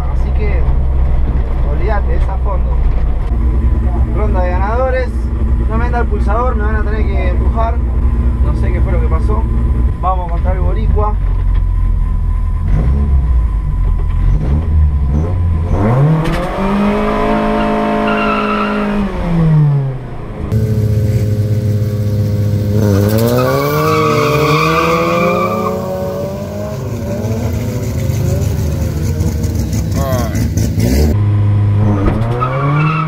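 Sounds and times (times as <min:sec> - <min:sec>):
race car accelerating away: 0:12.6 - 0:33.0
race car engine revving: 0:12.6 - 0:33.0.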